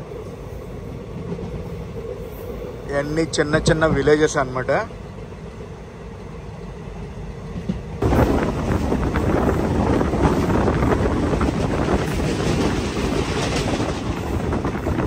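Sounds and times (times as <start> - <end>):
train wheels on rails: 0.0 - 4.3, 6.7 - 15.0
train running rumble: 0.0 - 15.0
wind rushing on microphone: 8.0 - 15.0.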